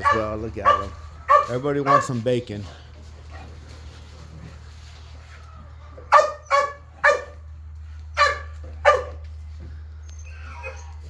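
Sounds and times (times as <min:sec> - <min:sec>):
dog barking: 0:00.0 - 0:02.3, 0:06.0 - 0:07.4, 0:08.1 - 0:09.2
steady low hum: 0:00.0 - 0:11.0.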